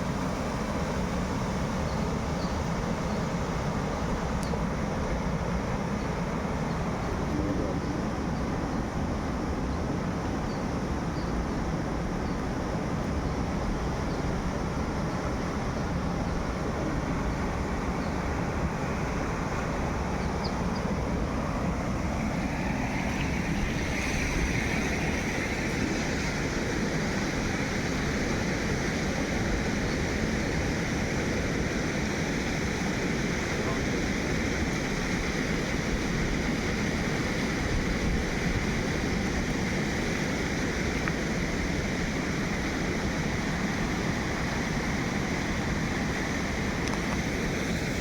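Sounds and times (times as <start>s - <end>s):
steady rushing noise: 11.6s - 48.0s.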